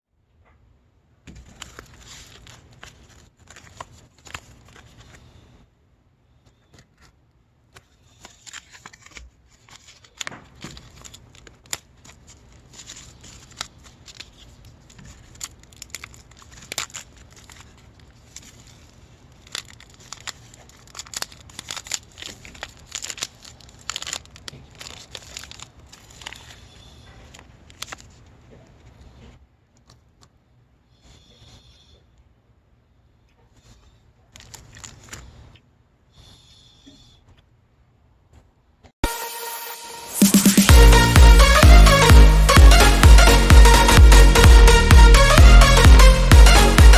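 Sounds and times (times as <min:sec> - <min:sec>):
packaging crinkling and tearing: 0:01.4 - 0:05.2, 0:07.8 - 0:28.4.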